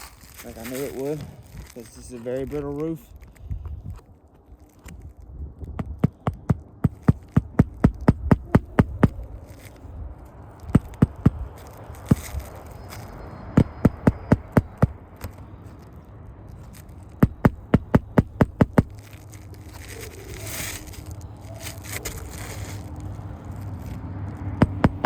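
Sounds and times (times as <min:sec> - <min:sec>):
shingle scraping and crackling: 0:00.0 - 0:25.0
hammer striking a nail: 0:05.8 - 0:09.2, 0:10.7 - 0:11.4, 0:13.6 - 0:14.9, 0:17.2 - 0:19.0, 0:24.6 - 0:25.0.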